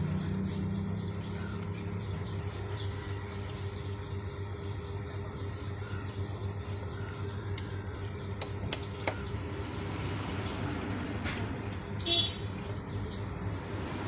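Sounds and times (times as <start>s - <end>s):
motorcycle engine running: 0.0s - 14.0s
sharp clicks: 7.5s - 9.3s.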